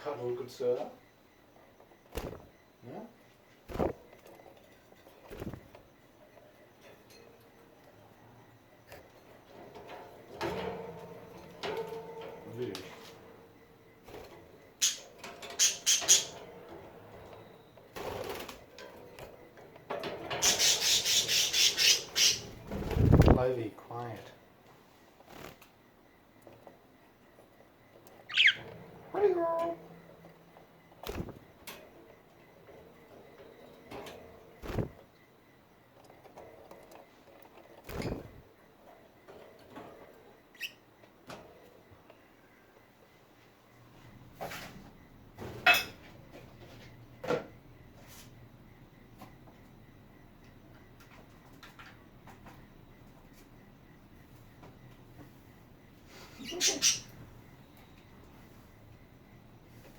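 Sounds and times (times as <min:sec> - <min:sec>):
budgie beak scratching: 0:14.8 - 0:16.4, 0:20.4 - 0:22.5
budgie chirp rising in pitch: 0:28.3 - 0:28.6.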